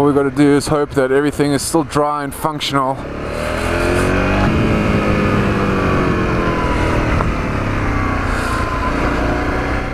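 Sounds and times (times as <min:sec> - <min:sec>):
motorcycle engine running: 0:02.9 - 0:09.9.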